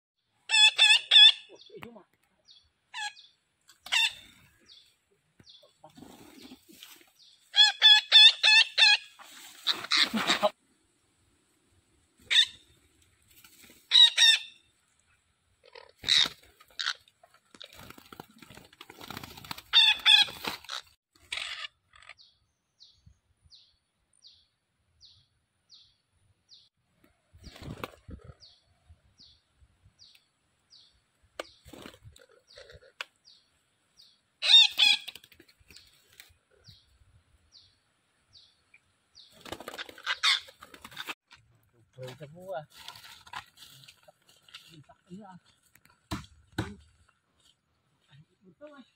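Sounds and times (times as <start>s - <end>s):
harsh bird calls: 38.3s - 41.2s.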